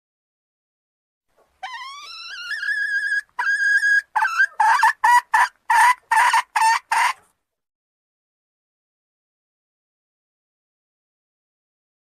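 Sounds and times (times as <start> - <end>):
junglefowl calling: 1.6 - 7.2.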